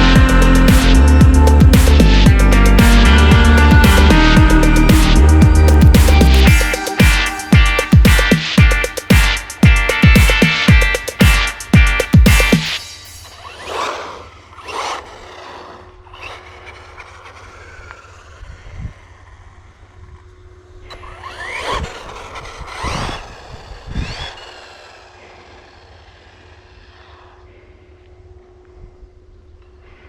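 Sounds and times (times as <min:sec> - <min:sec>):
rc car electric motor whining: 0:00.0 - 0:10.0, 0:12.7 - 0:28.4
wind on microphone: 0:22.4 - 0:24.4.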